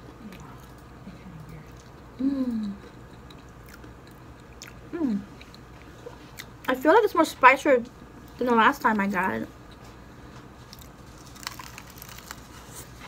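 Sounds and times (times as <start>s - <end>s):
person chewing: 1.7s - 6.6s, 10.6s - 13.0s.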